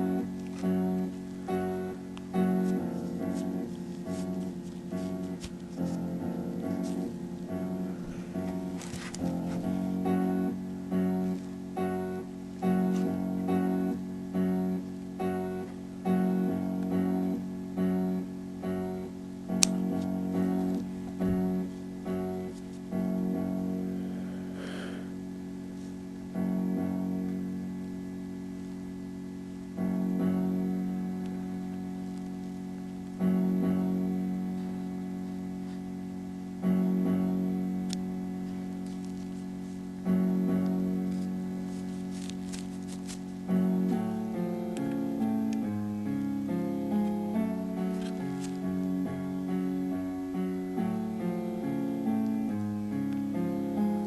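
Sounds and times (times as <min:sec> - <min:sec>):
plucked guitar-like chord music: 0:00.0 - 0:05.3.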